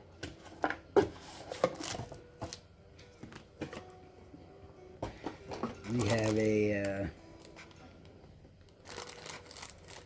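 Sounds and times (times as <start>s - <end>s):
packaging rustling: 5.8s - 7.0s, 8.6s - 10.0s.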